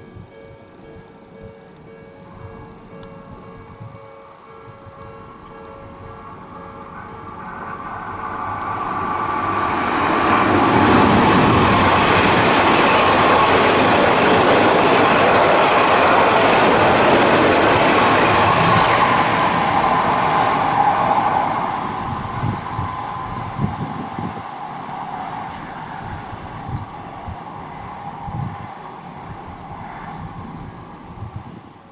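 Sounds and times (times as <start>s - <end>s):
electric train passing at speed: 0.0s - 31.9s
train wheel clacks: 5.2s - 29.8s.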